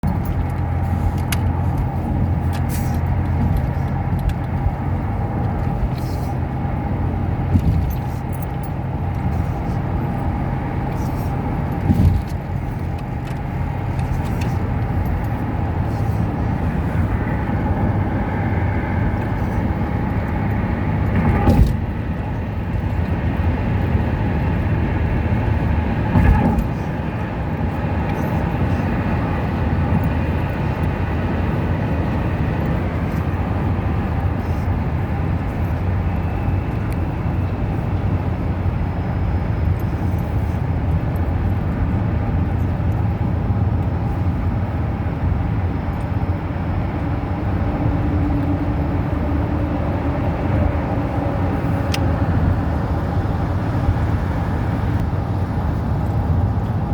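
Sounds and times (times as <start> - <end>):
car engine and tyre noise: 0.0 - 56.9.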